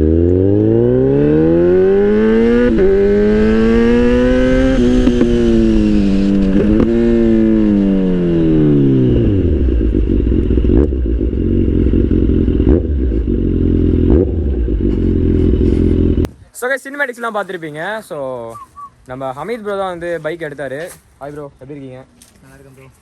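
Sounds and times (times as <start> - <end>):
motorcycle engine revving and idling: 0.0 - 16.3.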